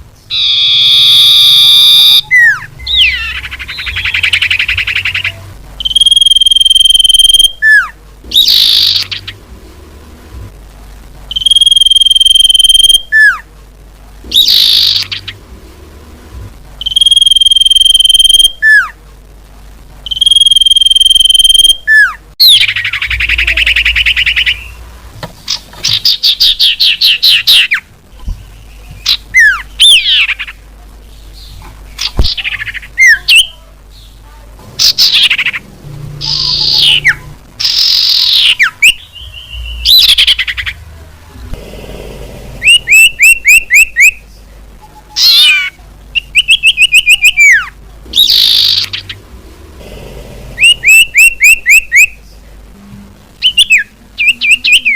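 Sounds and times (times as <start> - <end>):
buzzy bird trill: 0.2 - 9.4, 11.3 - 13.4, 14.3 - 15.4, 16.8 - 19.0, 20.1 - 24.8, 34.8 - 40.8, 42.6 - 44.2, 45.2 - 49.3, 50.6 - 52.2
chattering bird notes: 0.2 - 9.4, 34.8 - 40.9
bird whistles: 42.6 - 44.2, 50.6 - 52.1.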